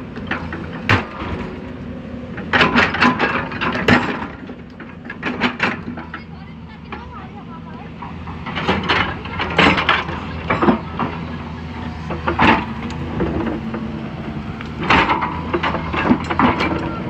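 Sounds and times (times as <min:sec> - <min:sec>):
diesel engine running: 0:00.0 - 0:17.0
machine knocks and clanks: 0:02.3 - 0:06.3, 0:07.9 - 0:11.4, 0:12.0 - 0:13.9, 0:14.7 - 0:17.0.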